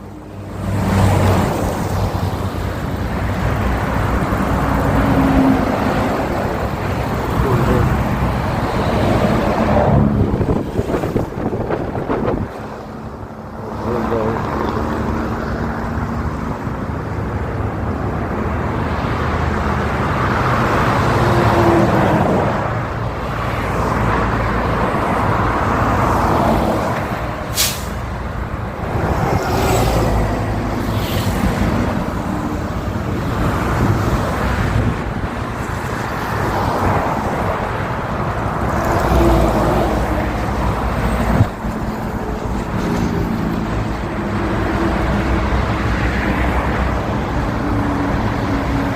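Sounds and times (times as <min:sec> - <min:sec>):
vehicles passing on highway: 0:00.0 - 0:48.9.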